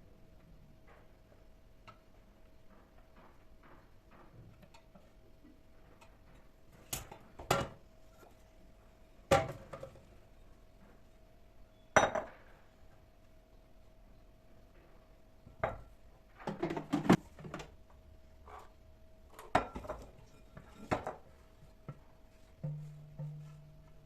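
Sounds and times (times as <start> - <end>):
dishes and utensils clinking: 19.4 - 21.3.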